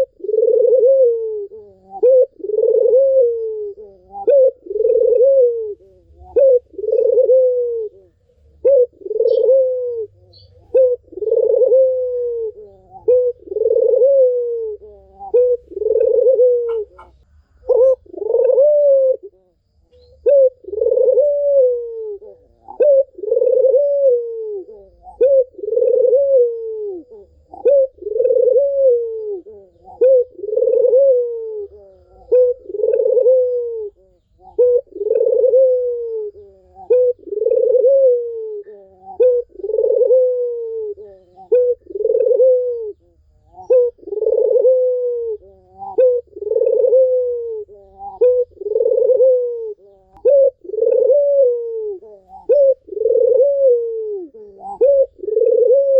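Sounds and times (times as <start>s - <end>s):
dove cooing: 0.0s - 55.9s.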